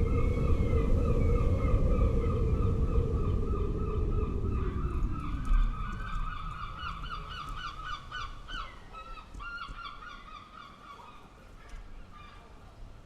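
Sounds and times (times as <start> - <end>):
low rumble: 0.0 - 8.9.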